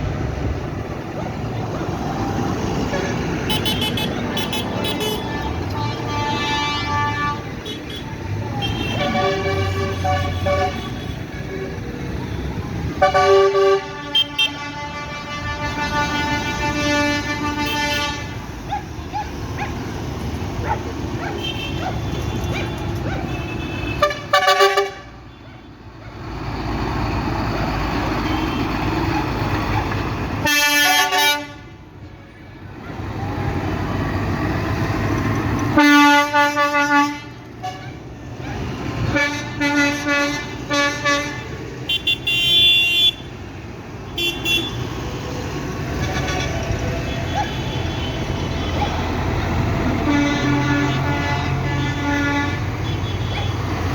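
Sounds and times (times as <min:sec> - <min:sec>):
tractor engines rumbling: 0:00.0 - 0:53.9
vehicle horns blasting: 0:02.7 - 0:18.6, 0:21.2 - 0:25.4, 0:28.1 - 0:28.9, 0:30.4 - 0:31.8, 0:35.7 - 0:38.1, 0:39.0 - 0:43.4, 0:44.0 - 0:45.2, 0:45.9 - 0:53.9.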